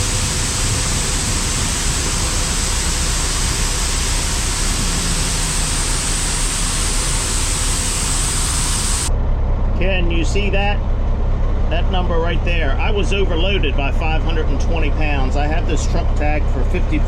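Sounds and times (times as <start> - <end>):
grain pouring from truck: 0.0 - 9.1.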